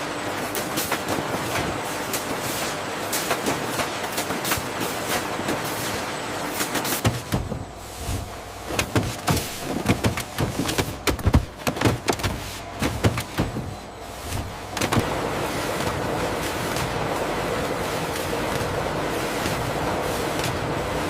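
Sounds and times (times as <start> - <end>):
machinery hum: 0.0 - 21.0
mechanical knocks and clatters: 6.6 - 20.8.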